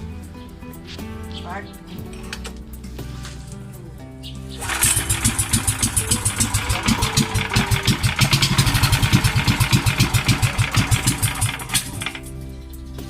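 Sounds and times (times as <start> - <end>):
engine running with rapid firing beats: 4.6 - 12.3.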